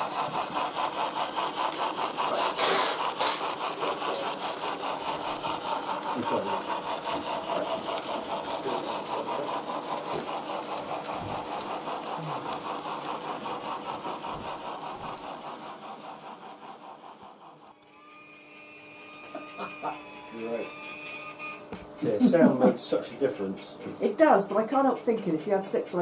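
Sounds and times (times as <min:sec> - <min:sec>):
steam hiss: 0:00.0 - 0:17.6
model locomotive steam chuffs: 0:00.0 - 0:26.0.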